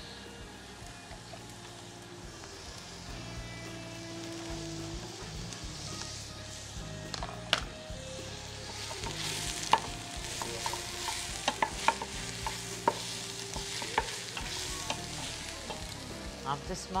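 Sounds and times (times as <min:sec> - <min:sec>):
vegetables sizzling in a pot: 0:00.0 - 0:17.0
spoon knocking and scraping a pot: 0:08.8 - 0:15.0.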